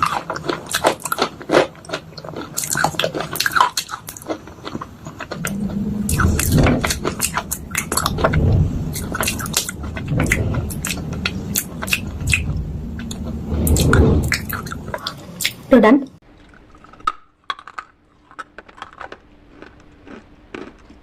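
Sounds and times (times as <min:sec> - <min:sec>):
low dull grinding: 0:05.3 - 0:15.7.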